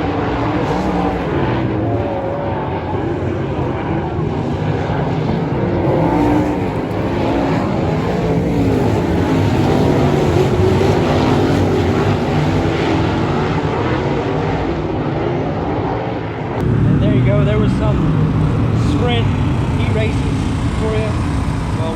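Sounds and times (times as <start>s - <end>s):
racing car engines: 0.0s - 21.9s.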